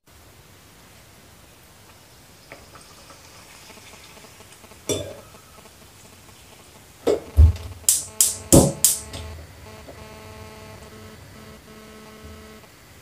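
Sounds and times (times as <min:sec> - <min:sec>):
oil sizzling: 0:00.5 - 0:09.9
thumps: 0:07.0 - 0:10.0.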